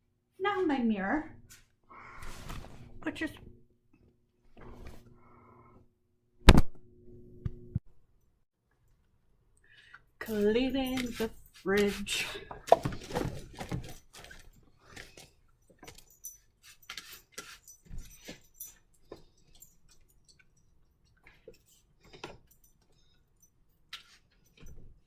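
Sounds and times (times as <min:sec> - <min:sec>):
objects clinking and knocking: 0:10.2 - 0:25.0.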